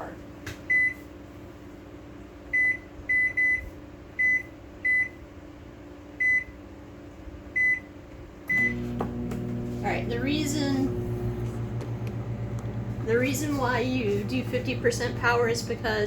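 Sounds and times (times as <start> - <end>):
microwave keypad beeps: 0.7 - 1.0, 2.5 - 5.2, 6.2 - 6.6, 7.6 - 7.9, 8.5 - 8.8.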